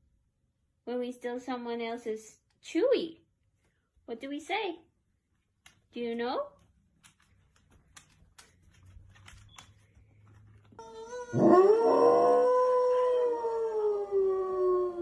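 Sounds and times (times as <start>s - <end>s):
dog howling: 10.8s - 15.0s.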